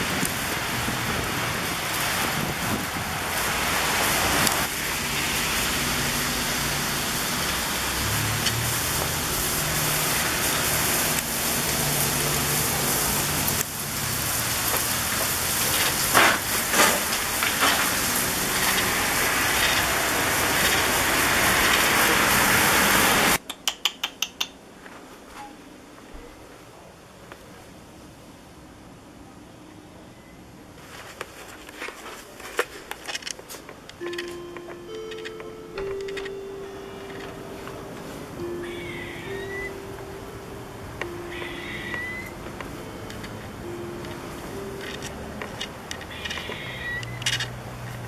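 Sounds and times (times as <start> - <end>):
freezing rain and sleet hissing: 0.0 - 23.4, 30.7 - 48.0
quick clicks: 23.4 - 24.6.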